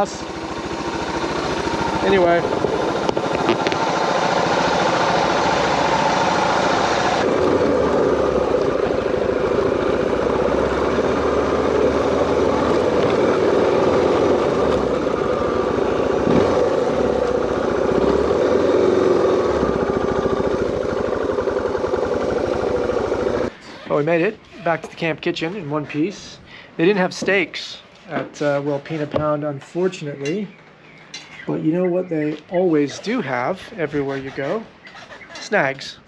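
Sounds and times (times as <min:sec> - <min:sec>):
motorcycle engine running: 0:00.0 - 0:23.5.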